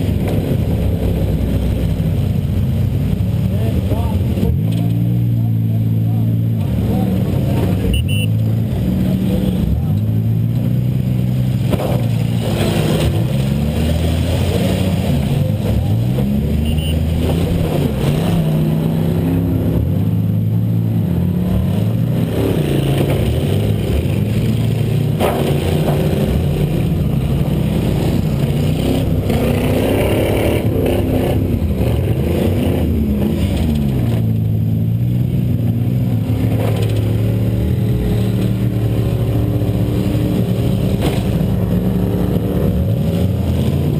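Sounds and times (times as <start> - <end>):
car engine revving: 0.0 - 43.9.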